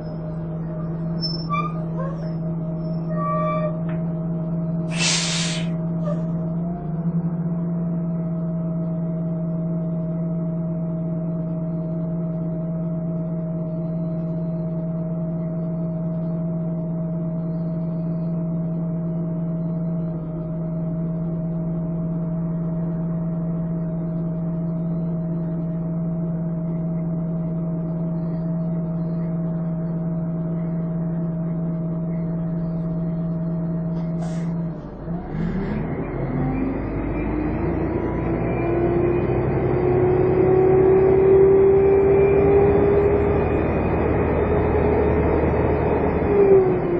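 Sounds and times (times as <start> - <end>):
bus engine idling: 0.0 - 10.6, 17.6 - 38.4
bus engine revving with whine: 0.0 - 46.9.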